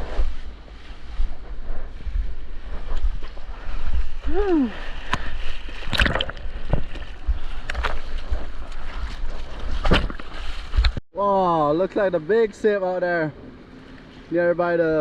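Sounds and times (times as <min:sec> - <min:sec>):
sea water sloshing and splashing: 0:05.0 - 0:08.2.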